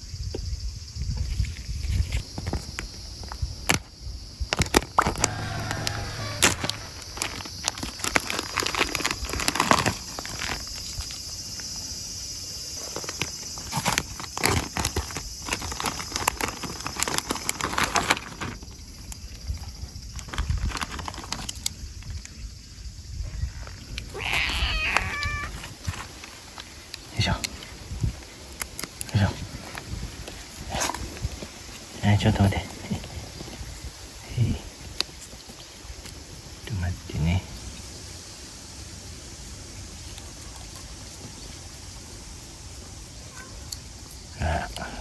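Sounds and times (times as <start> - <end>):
cat meowing: 24.1 - 25.6.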